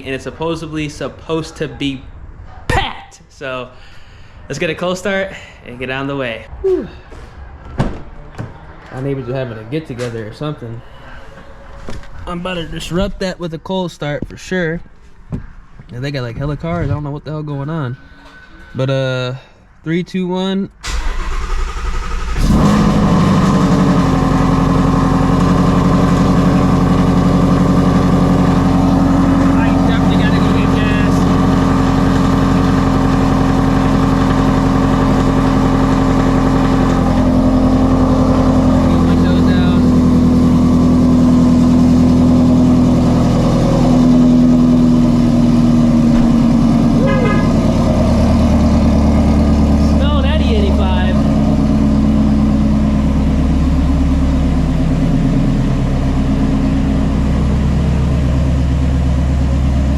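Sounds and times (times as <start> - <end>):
car starter cranking: 20.8 - 25.4
car engine idling: 20.8 - 59.9.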